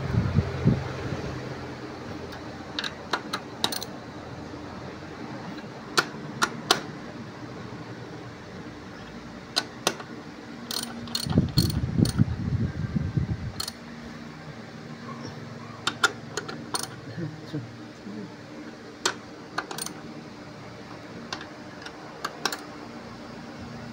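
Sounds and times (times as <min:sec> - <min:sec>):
metal tool clicks and knocks: 0:02.8 - 0:03.9, 0:15.9 - 0:17.0, 0:19.0 - 0:20.0
ratchet rattling: 0:02.8 - 0:03.9, 0:10.7 - 0:12.2, 0:13.6 - 0:13.8, 0:15.9 - 0:17.0, 0:19.6 - 0:20.0.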